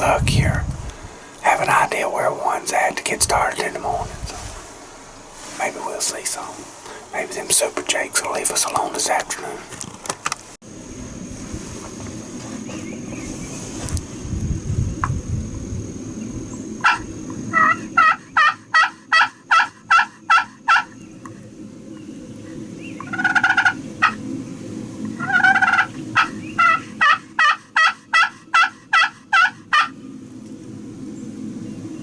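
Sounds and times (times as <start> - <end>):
turkey call yelps: 16.8 - 21.0, 23.0 - 24.2, 25.2 - 30.0.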